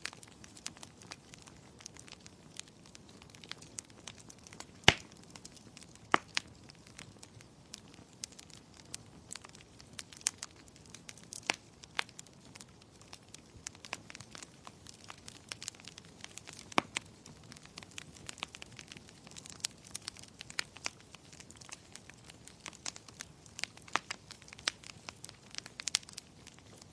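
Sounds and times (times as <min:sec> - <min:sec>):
faint low hiss of fire: 0:00.0 - 0:26.9
firewood crackling and popping: 0:00.0 - 0:26.9.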